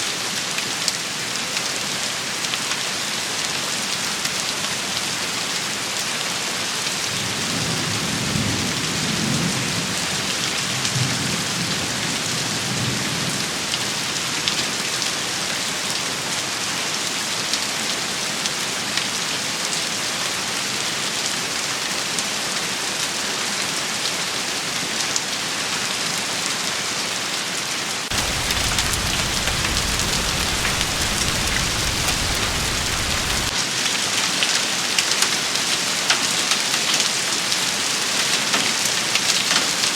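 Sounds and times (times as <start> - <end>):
heavy rain: 0.3 - 22.5, 28.0 - 39.9
deep low rumble: 28.1 - 33.5
low rumbles: 28.1 - 33.5.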